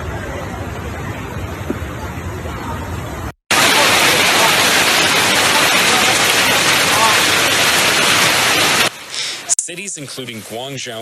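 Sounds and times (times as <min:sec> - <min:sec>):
heavy rain pouring: 0:03.5 - 0:10.4.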